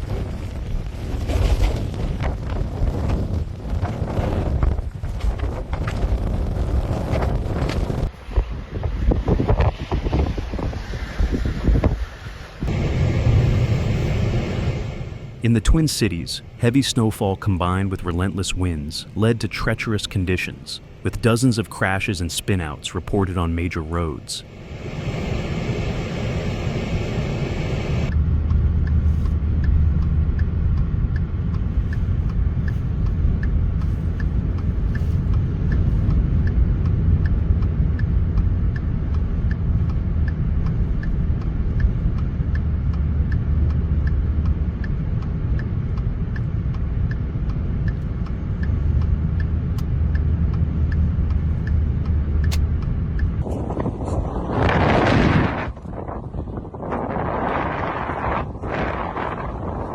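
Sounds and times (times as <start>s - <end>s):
road and engine rumble: 0.0s - 59.9s
turn signal relay ticking: 28.1s - 53.8s.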